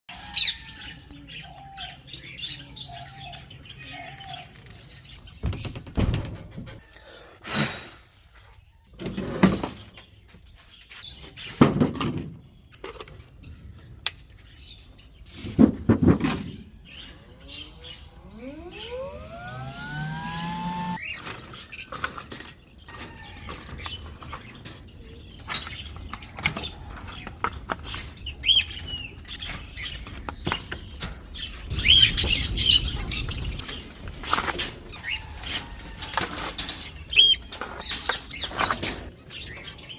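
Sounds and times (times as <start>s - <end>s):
cage birds chirping: 0.1s - 39.9s
rising whine: 17.4s - 21.0s
clattering and rustling: 21.2s - 39.9s.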